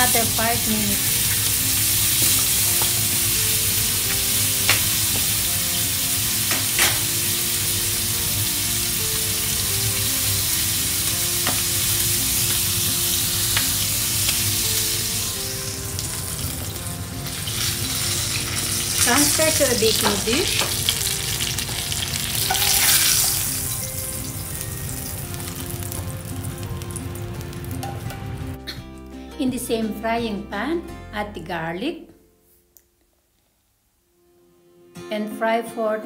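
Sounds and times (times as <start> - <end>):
chicken sizzling in frying pan: 0.0 - 28.5.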